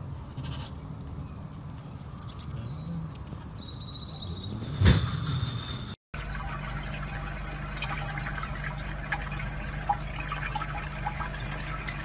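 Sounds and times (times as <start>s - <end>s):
water drips and splashes: 6.2s - 12.0s
water running from tap: 6.2s - 12.0s.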